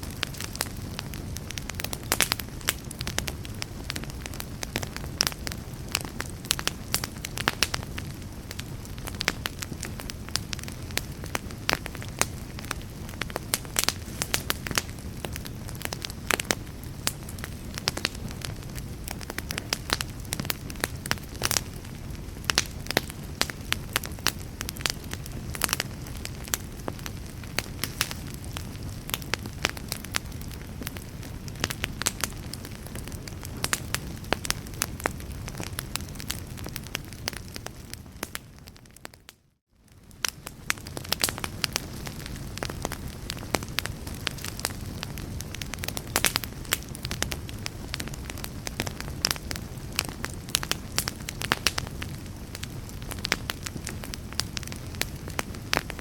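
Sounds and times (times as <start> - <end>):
fire crackling: 0.0 - 56.0.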